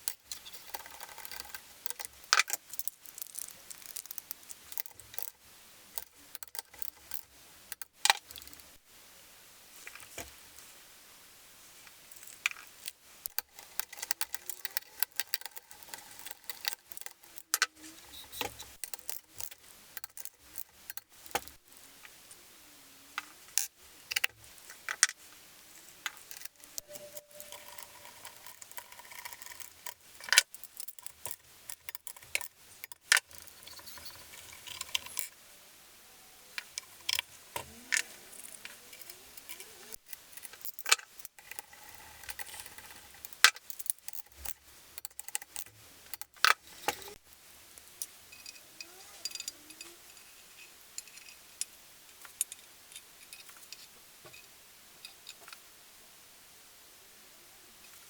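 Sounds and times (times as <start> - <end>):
metallic clicks of hand tools: 12.2 - 21.6, 49.2 - 49.9.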